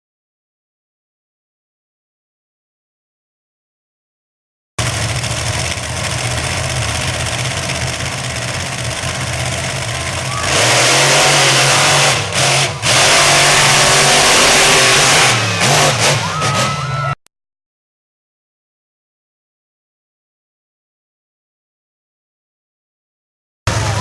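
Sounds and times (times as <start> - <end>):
monster truck engine revving: 4.8 - 17.2, 23.7 - 24.0.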